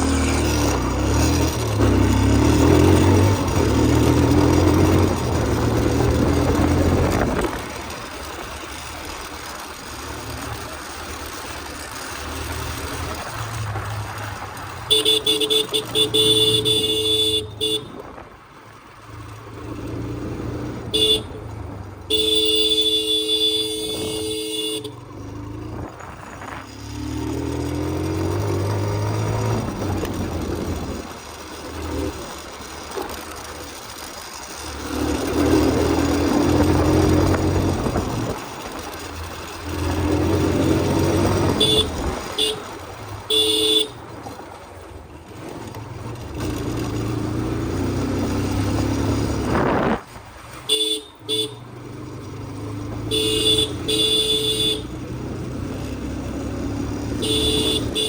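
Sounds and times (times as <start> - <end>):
motorcycle engine revving: 0.0 - 58.0
horn honking: 14.8 - 18.2, 20.7 - 26.6, 39.6 - 44.2, 50.5 - 51.8, 52.9 - 55.2, 56.1 - 58.0.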